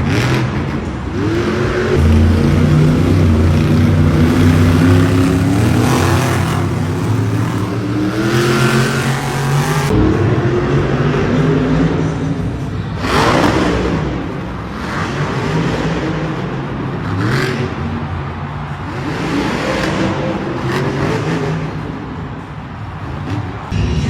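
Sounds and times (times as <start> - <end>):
truck engines revving: 0.0 - 24.0
loud noise bursts: 1.5 - 14.5, 23.4 - 24.0.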